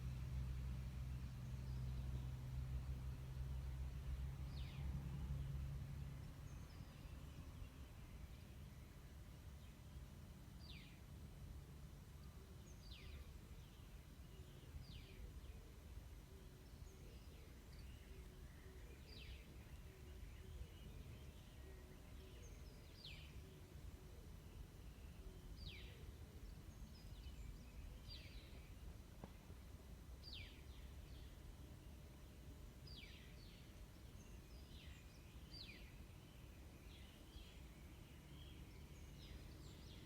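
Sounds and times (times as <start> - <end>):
low outdoor rumble: 0.0 - 40.0.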